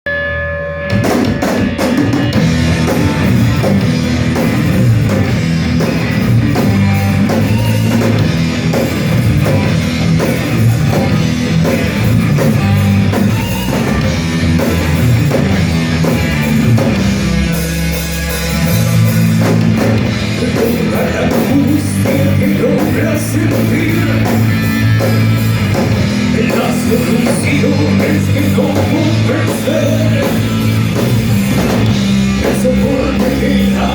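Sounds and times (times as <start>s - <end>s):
bass guitar: 0.0s - 33.9s
distorted electric guitars: 0.0s - 33.9s
drum kit: 0.1s - 33.9s.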